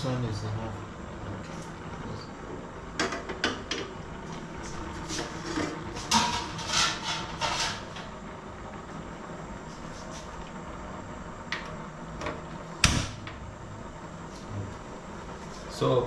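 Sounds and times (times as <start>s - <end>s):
utensils scraping and clinking: 5.1s - 8.1s.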